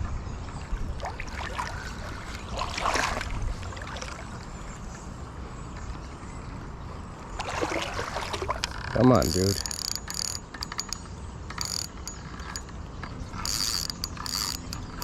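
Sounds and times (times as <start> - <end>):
water splashing around a kayak: 0.5 - 5.0, 7.3 - 9.7.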